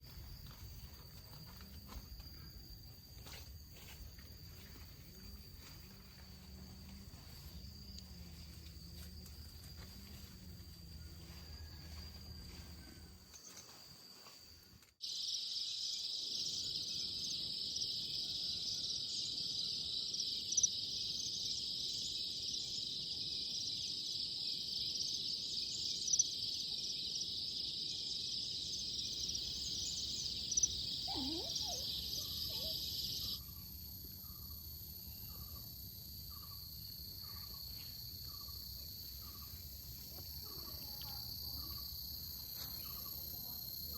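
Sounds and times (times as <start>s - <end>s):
insects chirping: 0.0s - 43.9s.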